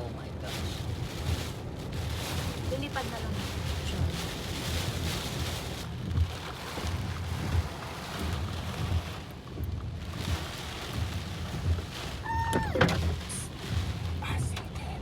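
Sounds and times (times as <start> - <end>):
car rumble: 0.0 - 15.0
wind and rain rushing: 0.0 - 15.0.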